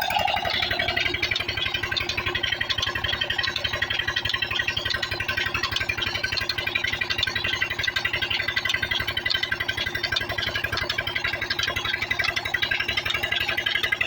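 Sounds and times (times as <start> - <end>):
diesel engine running: 0.0 - 4.4.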